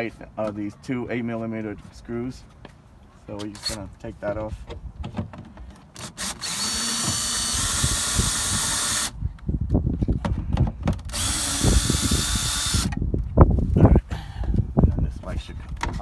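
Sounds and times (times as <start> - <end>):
knocks and rattles of handling: 2.4 - 6.2
power drill running: 6.0 - 9.2, 11.1 - 12.9.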